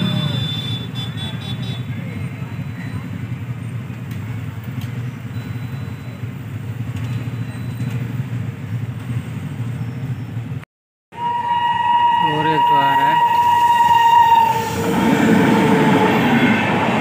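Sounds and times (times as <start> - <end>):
faint street noise: 0.0 - 10.6
motorcycle and car engines idling: 1.9 - 10.6.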